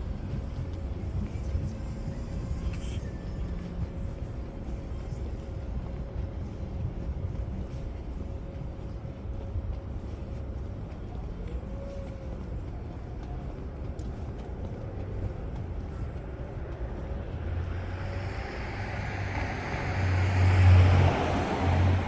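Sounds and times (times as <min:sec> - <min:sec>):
city traffic rumbling: 0:00.0 - 0:22.0
vehicle passing close by: 0:17.4 - 0:22.0.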